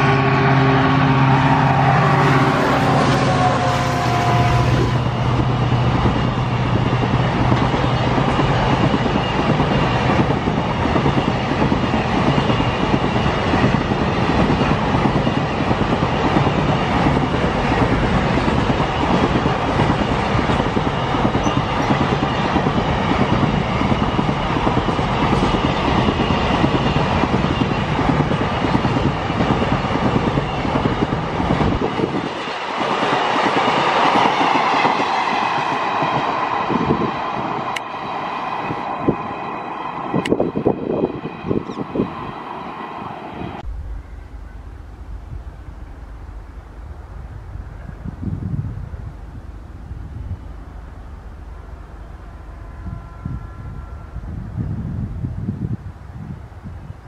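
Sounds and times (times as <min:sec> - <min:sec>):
diesel locomotive engine drone: 0:00.0 - 0:57.0
steel wheels rumbling on rail: 0:00.0 - 0:57.0
faint high whine: 0:43.6 - 0:54.9.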